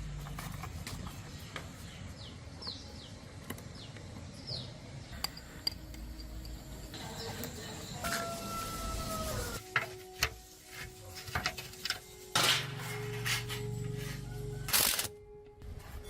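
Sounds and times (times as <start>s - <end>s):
small birds chirping: 0.4s - 8.6s.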